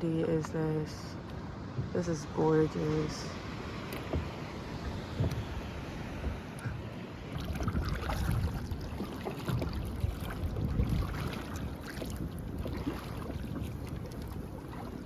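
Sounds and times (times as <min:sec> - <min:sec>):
water splashing and lapping: 0:00.0 - 0:15.0
wind buffeting microphone: 0:03.9 - 0:15.0.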